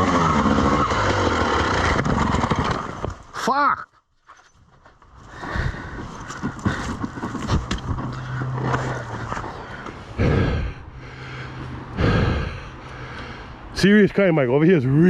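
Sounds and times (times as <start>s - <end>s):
dirt bike engine running: 0.0s - 3.4s, 5.3s - 12.5s
scraping and knocking in mud: 5.8s - 10.0s.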